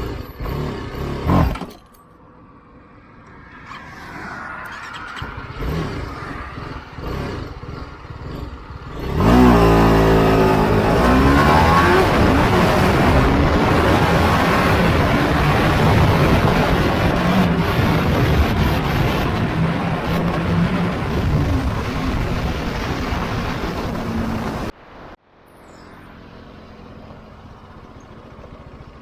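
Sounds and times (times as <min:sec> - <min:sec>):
motorcycle engine revving: 0:00.0 - 0:01.9, 0:03.6 - 0:24.8
wind on microphone: 0:10.4 - 0:24.7.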